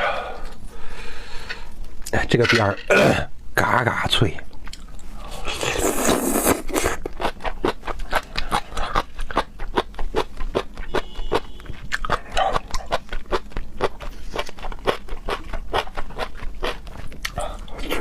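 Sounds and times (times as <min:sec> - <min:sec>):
chewing crunchy food: 0:04.7 - 0:18.0.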